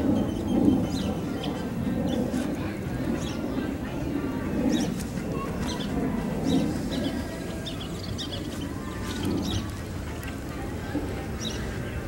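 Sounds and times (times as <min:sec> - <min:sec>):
low outdoor rumble: 0:00.0 - 0:12.0
small birds chirping: 0:04.6 - 0:09.8.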